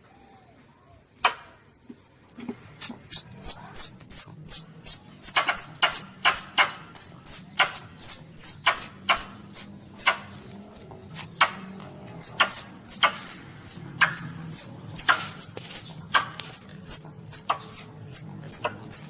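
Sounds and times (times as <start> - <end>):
civet squeaking: 2.8 - 19.0.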